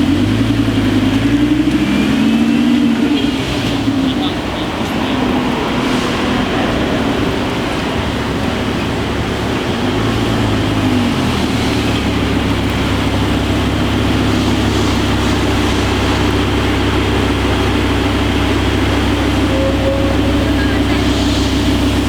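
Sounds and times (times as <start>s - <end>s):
car engine droning: 0.0s - 22.0s.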